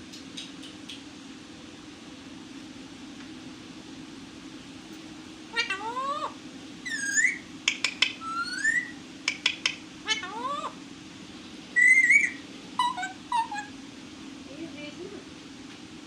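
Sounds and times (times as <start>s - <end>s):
parrot clicks: 0.1s - 1.1s, 7.6s - 8.2s, 9.2s - 9.8s
parrot squawk: 5.5s - 7.5s, 8.2s - 9.0s, 9.6s - 10.8s, 11.8s - 13.8s
parrot whistle-like calls: 5.5s - 10.8s, 11.7s - 13.8s.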